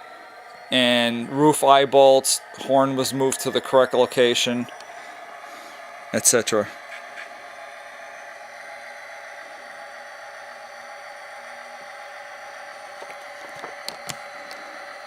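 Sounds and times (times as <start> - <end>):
diesel idling through small speaker: 0.0 - 15.0.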